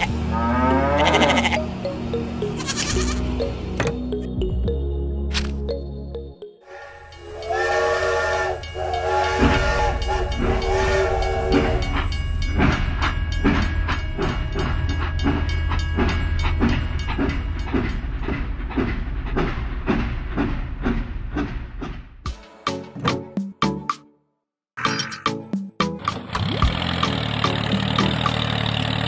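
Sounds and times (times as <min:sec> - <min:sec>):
steam whistle blasts: 0:06.7 - 0:12.0
locomotive chugging: 0:06.7 - 0:22.3, 0:26.0 - 0:29.0.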